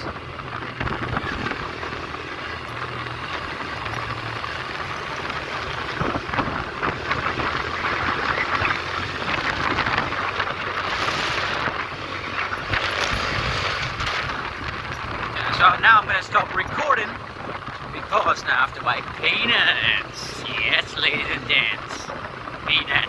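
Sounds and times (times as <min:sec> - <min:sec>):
motorcycle engine drone: 0:00.0 - 0:23.0
wind buffeting microphone: 0:00.0 - 0:23.0.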